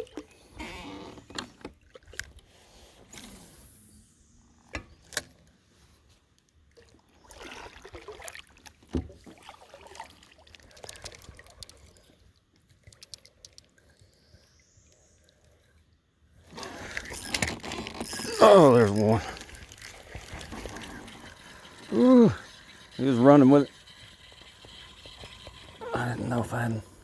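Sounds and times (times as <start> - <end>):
water swishing: 6.7 - 14.3, 16.4 - 27.0.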